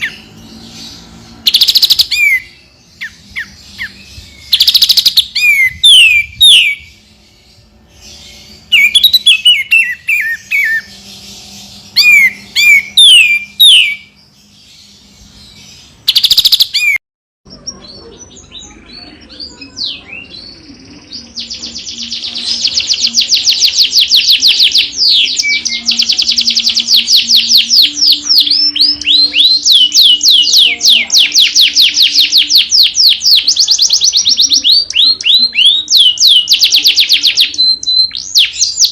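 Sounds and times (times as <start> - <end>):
fast run of sharp bird notes: 0.0 - 17.0
bird whistled phrases: 1.5 - 7.0, 8.7 - 10.9, 11.9 - 14.2, 16.1 - 17.0, 17.7 - 38.9.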